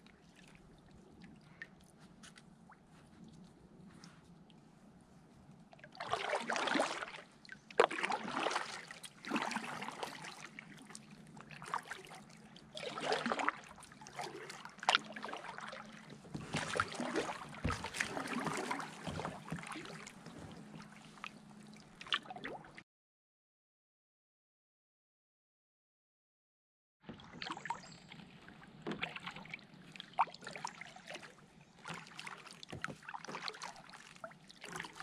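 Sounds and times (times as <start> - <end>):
paddle splashing in water: 5.8 - 22.8, 27.1 - 35.0.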